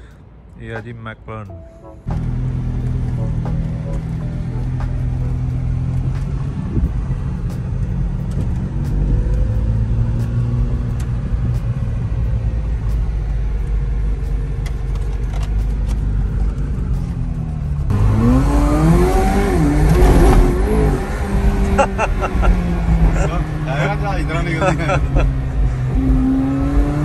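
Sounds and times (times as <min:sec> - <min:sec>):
car engine running low: 0:02.1 - 0:27.0
engine revving up: 0:17.9 - 0:27.0.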